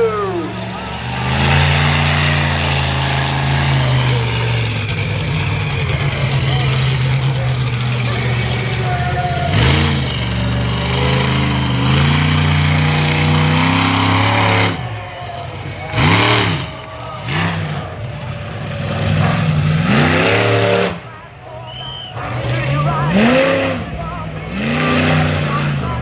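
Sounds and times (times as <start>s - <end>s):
monster truck engine revving: 0.0s - 26.0s.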